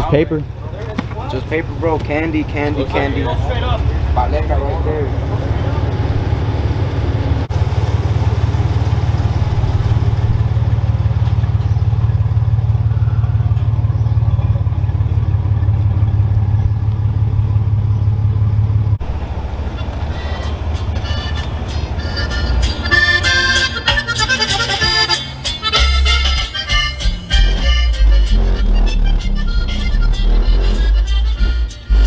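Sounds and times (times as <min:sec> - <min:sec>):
truck engine droning: 0:00.0 - 0:32.0
music: 0:20.1 - 0:32.0.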